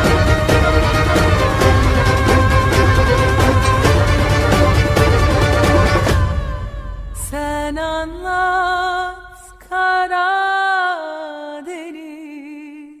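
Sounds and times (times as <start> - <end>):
backing music: 0.0 - 9.0.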